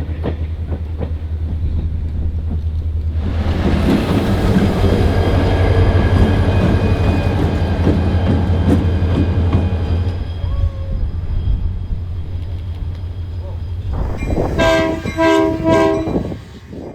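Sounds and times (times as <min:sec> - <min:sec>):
diesel locomotive engine drone: 0:00.0 - 0:16.9
wheels clattering on rail joints: 0:00.0 - 0:16.9
high wheel squeal: 0:03.7 - 0:16.9.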